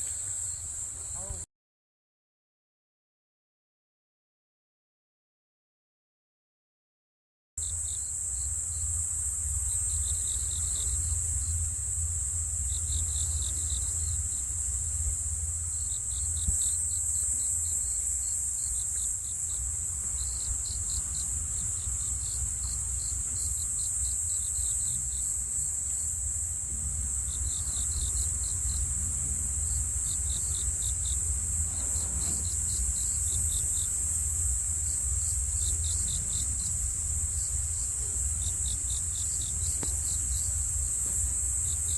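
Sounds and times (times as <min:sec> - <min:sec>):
high-pitched insect drone: 0:00.0 - 0:01.4, 0:07.6 - 0:41.9
crickets chirping: 0:00.0 - 0:01.5, 0:07.6 - 0:41.9
low rumble: 0:19.5 - 0:41.9.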